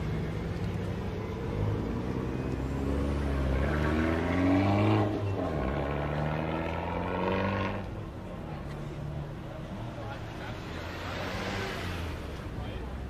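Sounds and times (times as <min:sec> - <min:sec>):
engine revving: 0:01.6 - 0:07.9.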